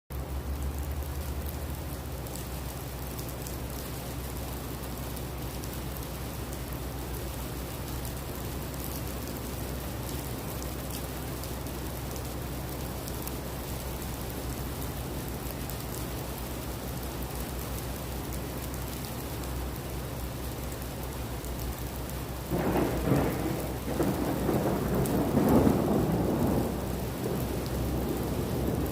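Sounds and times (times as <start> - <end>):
heavy rain falling: 0.1 - 28.9
thunder rumbling: 22.4 - 28.9.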